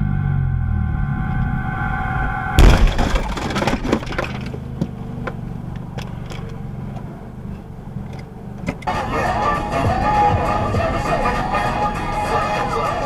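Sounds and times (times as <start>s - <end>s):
car engine and road drone: 0.0s - 13.0s.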